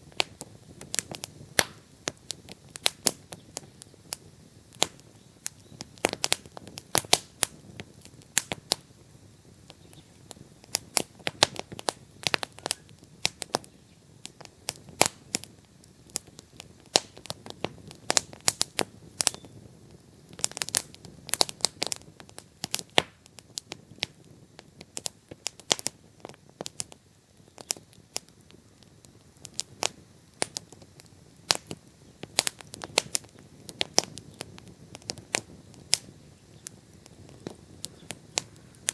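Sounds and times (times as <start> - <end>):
bonfire crackling and popping: 0.0 - 38.9
low hiss of burning: 0.0 - 38.9.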